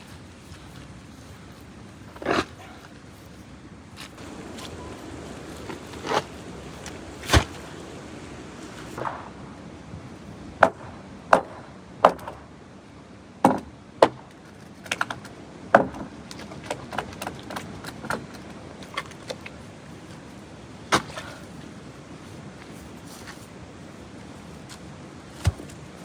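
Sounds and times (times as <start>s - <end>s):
sharp knocks: 10.6s - 12.4s, 13.4s - 14.4s.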